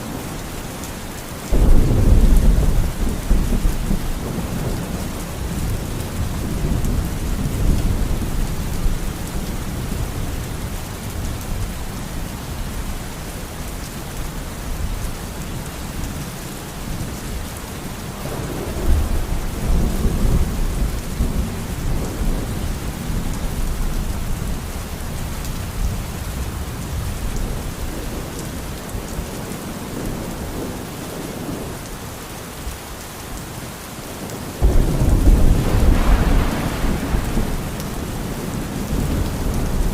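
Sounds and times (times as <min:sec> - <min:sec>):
heavy rain: 0:00.0 - 0:39.9
low rolling thunder: 0:01.5 - 0:13.1, 0:18.2 - 0:31.7, 0:34.6 - 0:39.9.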